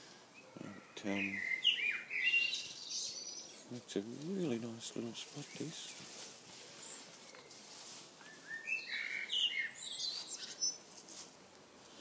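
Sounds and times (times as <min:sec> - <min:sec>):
faint background hiss: 0:00.0 - 0:12.0
songbird whistling: 0:01.3 - 0:03.4, 0:08.2 - 0:10.8.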